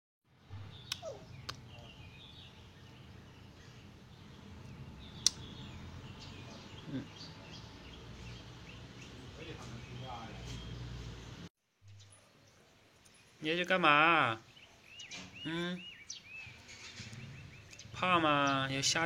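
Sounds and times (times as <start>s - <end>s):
small bird chirps: 0.5s - 10.8s, 14.4s - 18.6s.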